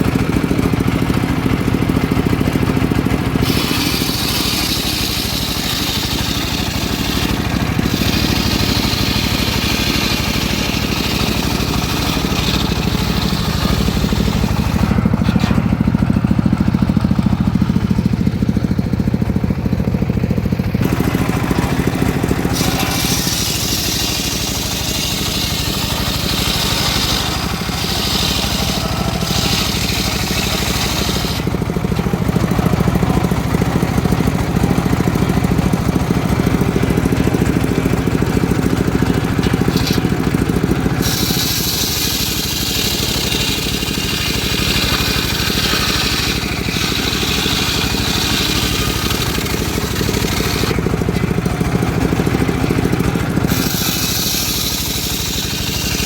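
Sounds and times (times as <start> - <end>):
saw mill engine running: 0.0 - 56.0
saw blade ripping through log: 3.3 - 17.6, 20.8 - 33.3, 37.2 - 51.5, 52.1 - 56.0.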